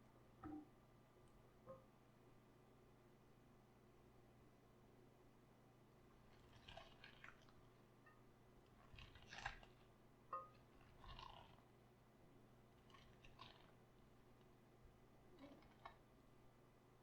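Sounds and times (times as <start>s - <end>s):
raw cabbage crunching: 6.3s - 7.6s, 8.7s - 11.7s, 12.8s - 14.5s.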